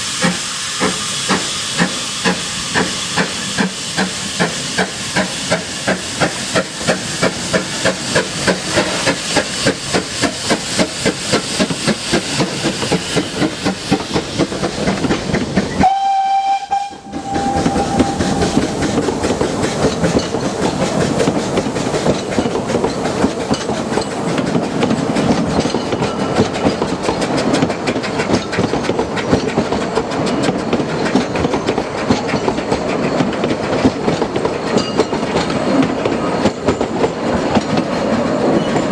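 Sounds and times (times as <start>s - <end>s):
steam locomotive exhaust beats: 0.0s - 38.9s
steam locomotive whistle: 15.7s - 19.0s.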